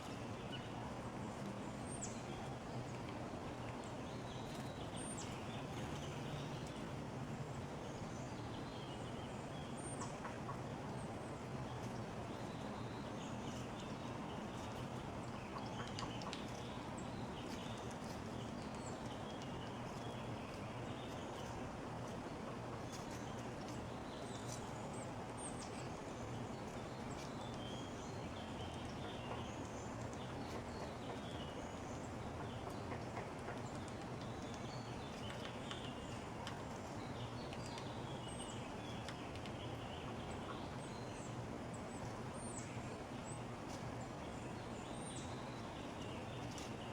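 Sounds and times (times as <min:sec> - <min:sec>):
songbirds chipping and calling: 0:22.8 - 0:46.9.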